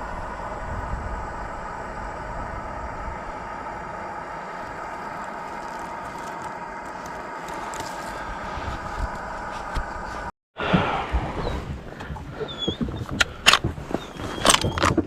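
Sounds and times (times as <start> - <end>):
steady mechanical hum: 0.0 - 10.3
low rumble: 0.0 - 14.6.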